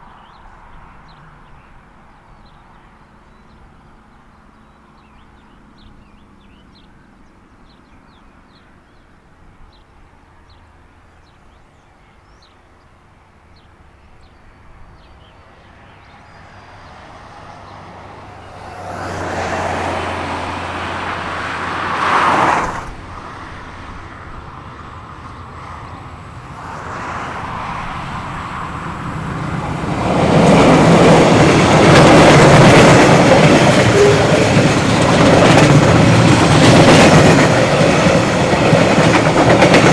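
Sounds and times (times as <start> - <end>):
locomotive passing loudly: 15.7 - 39.9
train wheels clacking: 18.2 - 23.4, 28.0 - 39.9.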